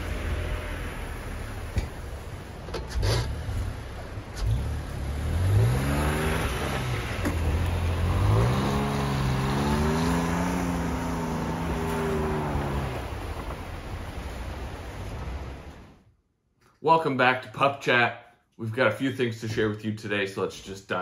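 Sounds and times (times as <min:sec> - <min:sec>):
pickup engine accelerating: 0:00.0 - 0:16.0.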